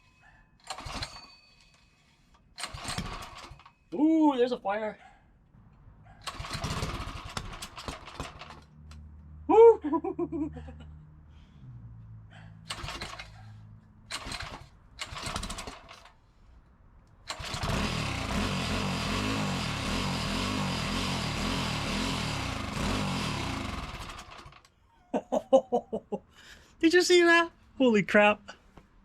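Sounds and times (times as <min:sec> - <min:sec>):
small engine sputtering and running: 0:00.7 - 0:01.3, 0:02.6 - 0:03.7, 0:06.2 - 0:08.8, 0:12.7 - 0:13.4, 0:14.1 - 0:16.1, 0:17.3 - 0:24.7.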